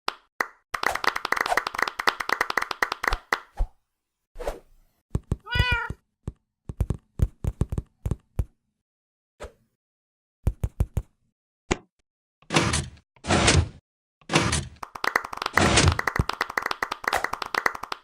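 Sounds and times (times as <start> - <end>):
meow-like cry: 5.4 - 6.0.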